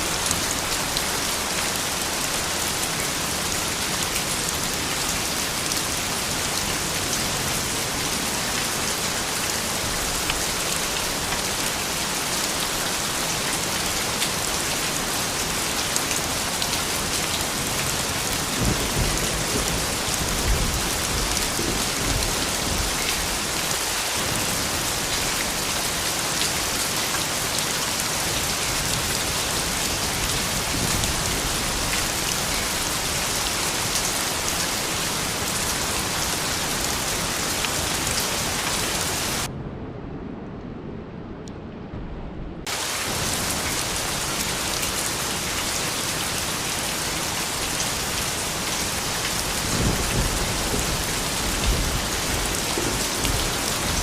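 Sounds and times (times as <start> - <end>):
steady rain: 0.0 - 39.5, 42.6 - 54.0
distant thunder rumble: 49.7 - 54.0.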